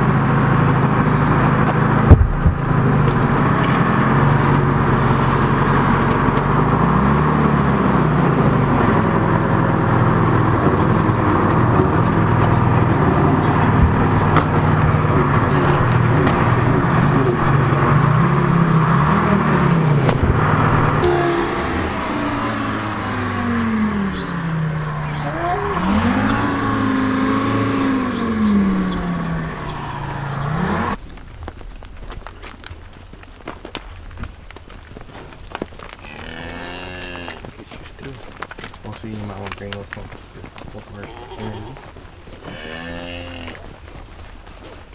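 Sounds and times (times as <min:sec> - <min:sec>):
heavy vehicle engine revving: 0:00.0 - 0:31.0.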